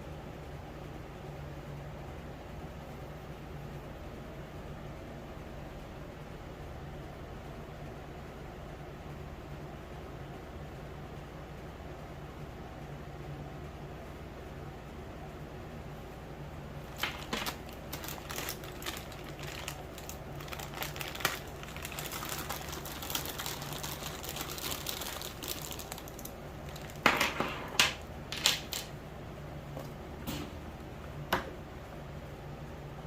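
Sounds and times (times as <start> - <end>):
rustling: 16.8 - 27.1.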